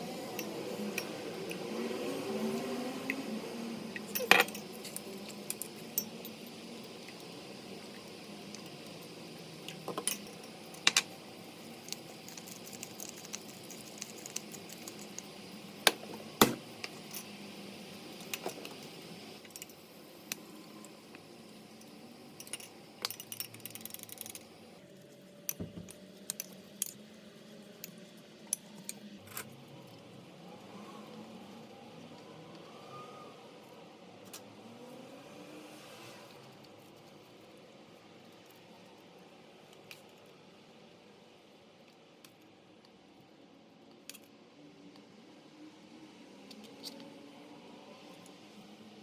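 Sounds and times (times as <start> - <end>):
steady background noise: 0.0 - 49.0
kitchen utensils and dishes clinking: 4.0 - 6.3.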